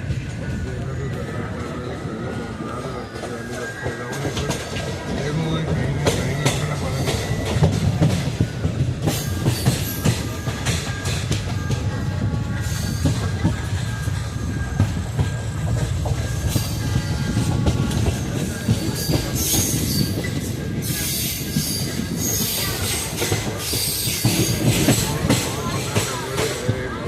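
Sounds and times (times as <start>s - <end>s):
train wheels rumbling on track: 0.0s - 27.0s
metallic wheel squeal: 16.2s - 25.5s.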